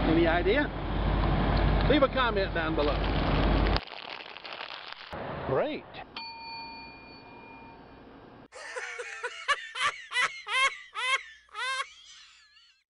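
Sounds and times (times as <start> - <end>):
bell-like ding: 6.2 - 8.1
high-pitched squeaky laugh: 8.6 - 12.8.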